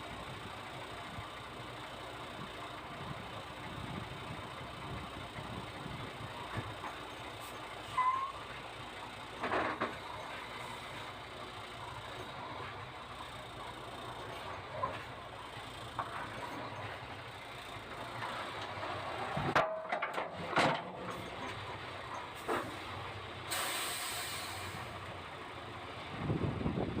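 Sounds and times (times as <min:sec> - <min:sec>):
diesel engine idling: 0:00.0 - 0:27.0
sharp knocks and clunks: 0:09.4 - 0:10.1
compressed air hissing: 0:23.5 - 0:24.9.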